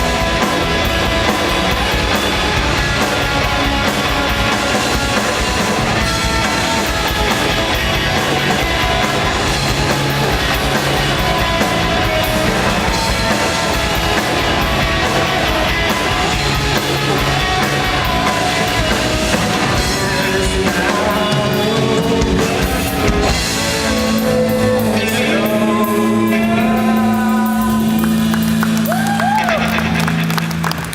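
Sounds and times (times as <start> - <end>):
drum kit: 0.0 - 30.9
electric guitars: 0.0 - 30.9
person singing: 17.4 - 28.4.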